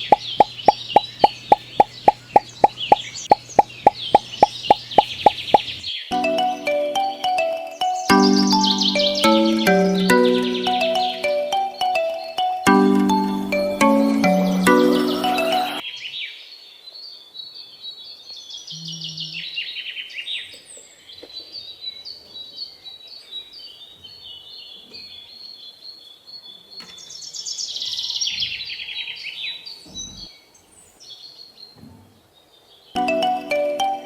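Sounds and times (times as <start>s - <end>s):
birds chirping and singing: 0.0s - 6.0s, 8.1s - 11.3s.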